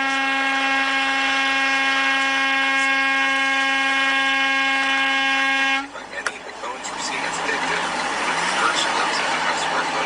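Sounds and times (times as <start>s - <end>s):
vehicle horn blast: 0.0s - 5.9s.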